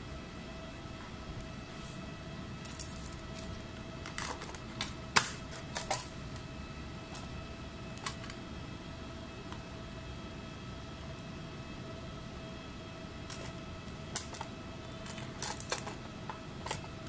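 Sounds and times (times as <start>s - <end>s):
steady hum: 0.0s - 17.0s
laptop clicks and clacks: 4.1s - 6.1s.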